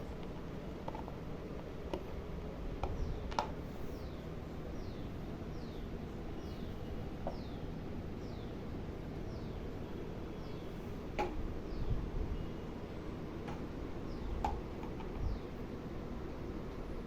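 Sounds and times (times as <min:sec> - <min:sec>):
low background hum: 0:00.0 - 0:17.0
bird chirping: 0:02.8 - 0:15.6.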